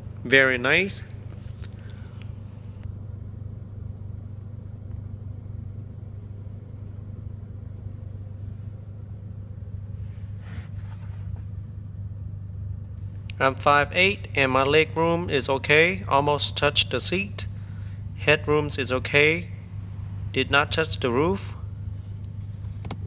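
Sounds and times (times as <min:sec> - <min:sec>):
faint rustle: 0:10.0 - 0:11.5.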